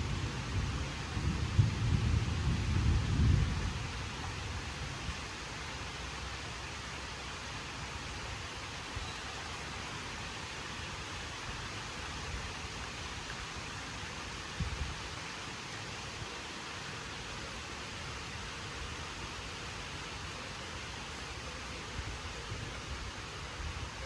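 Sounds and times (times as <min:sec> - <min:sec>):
heavy rain falling: 0:00.0 - 0:07.2.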